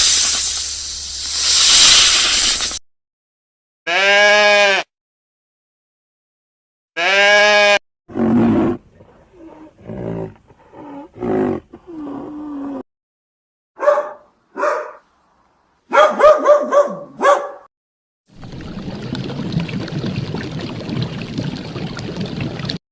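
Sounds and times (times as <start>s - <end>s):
animal bleat: 3.9s - 4.9s, 7.0s - 7.8s
big cat growling roars: 8.1s - 12.8s
barks: 13.8s - 15.1s, 15.9s - 17.7s.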